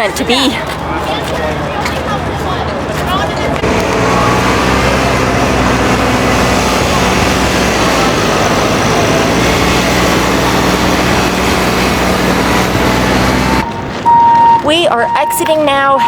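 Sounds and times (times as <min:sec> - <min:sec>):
crowd chatter: 0:00.0 - 0:14.8
steady motor hum: 0:02.1 - 0:13.6.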